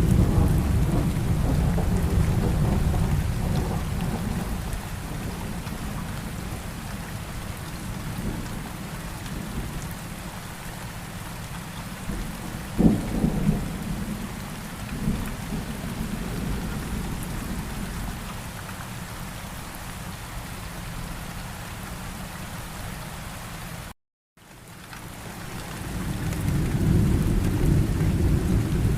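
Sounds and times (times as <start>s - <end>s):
thunder rumbling: 0.0s - 9.9s, 12.0s - 18.4s, 25.6s - 28.9s
steady rain: 0.0s - 28.9s.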